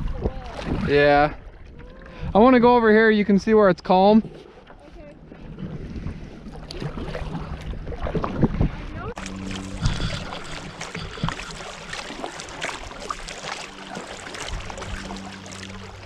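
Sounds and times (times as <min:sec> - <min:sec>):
kayak paddle splashing water: 0:00.0 - 0:02.3, 0:04.1 - 0:16.0
water lapping against hull: 0:00.0 - 0:16.0.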